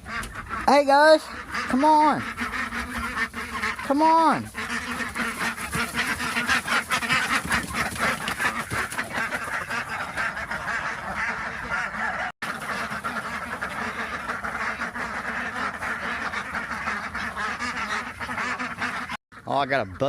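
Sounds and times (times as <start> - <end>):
ducks quacking: 0.0 - 20.0.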